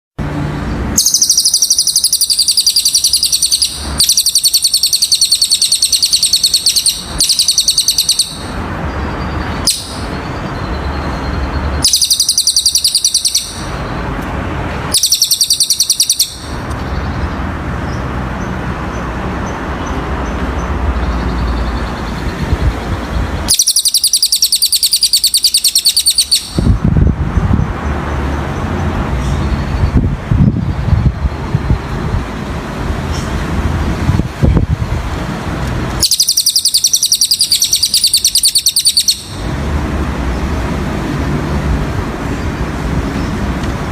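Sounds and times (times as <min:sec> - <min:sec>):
bird singing high rapid trills: 0:00.4 - 0:14.2, 0:14.8 - 0:26.9, 0:36.0 - 0:39.5.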